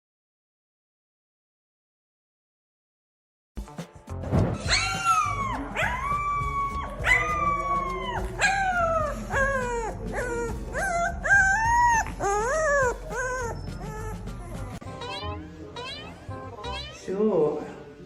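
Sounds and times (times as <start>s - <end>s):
dog howling and whining: 4.6s - 14.8s.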